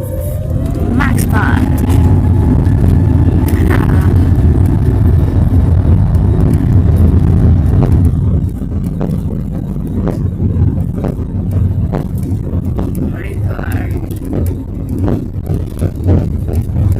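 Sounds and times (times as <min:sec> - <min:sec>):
jet engines rumbling in cabin: 0:00.0 - 0:16.9.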